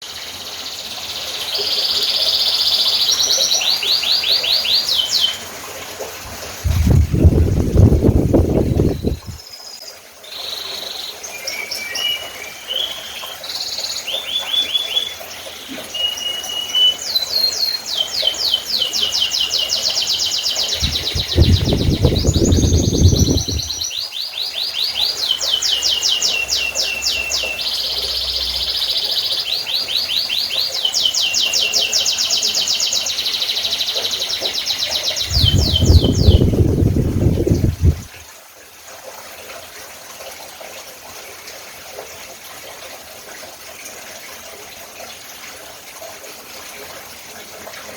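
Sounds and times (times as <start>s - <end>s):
canary singing: 20.6s - 24.0s.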